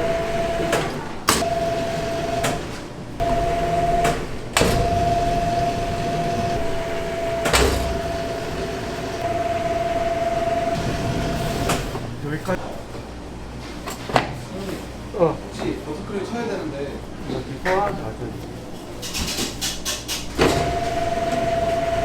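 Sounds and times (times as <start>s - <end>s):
machine motor whining: 0.0s - 12.3s, 20.4s - 22.0s.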